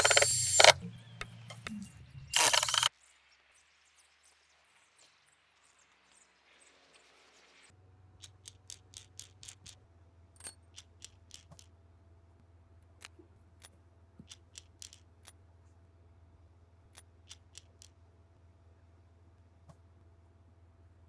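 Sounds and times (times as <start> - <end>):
short sharp clicks: 0.0 - 0.8, 1.5 - 2.9.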